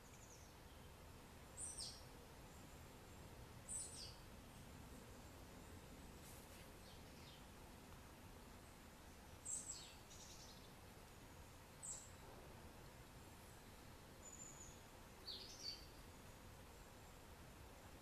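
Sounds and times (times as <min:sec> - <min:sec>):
faint high bird chirps: 0:01.6 - 0:07.5, 0:09.0 - 0:12.2, 0:13.5 - 0:17.3.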